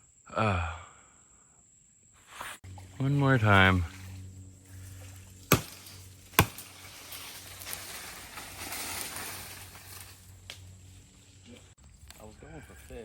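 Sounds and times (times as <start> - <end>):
sharp knocks: 5.5 - 6.6.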